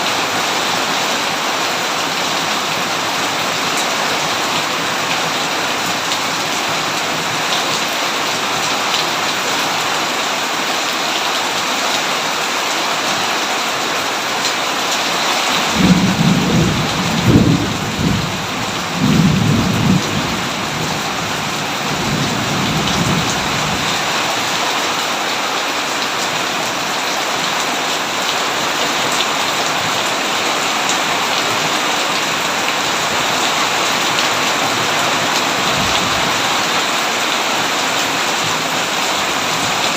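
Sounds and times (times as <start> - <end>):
heavy rain hissing: 0.0 - 39.9
thunder rumbling: 15.6 - 23.9.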